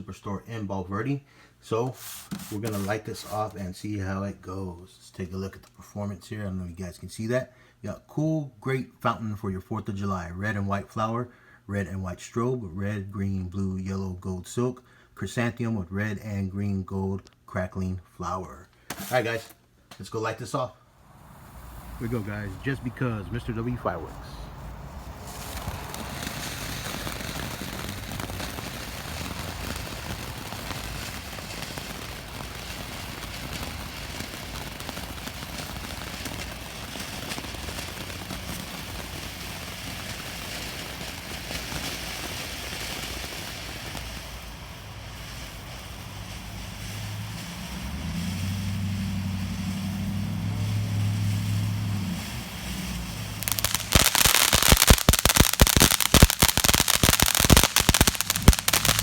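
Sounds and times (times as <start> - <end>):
firework crackling: 1.8 - 4.2, 18.9 - 19.6, 21.0 - 59.0
firework fountain hissing: 1.9 - 3.8, 18.9 - 19.5, 21.0 - 59.0.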